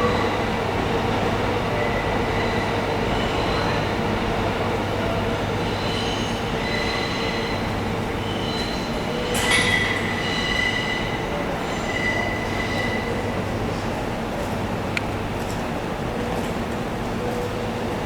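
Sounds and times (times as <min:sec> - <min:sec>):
train rolling on rails: 0:00.0 - 0:18.0
train wheels squealing: 0:01.7 - 0:04.1, 0:05.5 - 0:13.5.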